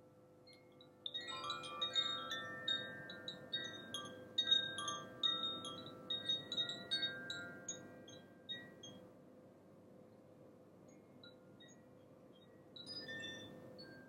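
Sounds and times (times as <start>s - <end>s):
wind chimes ringing: 1.2s - 9.0s, 12.8s - 14.0s.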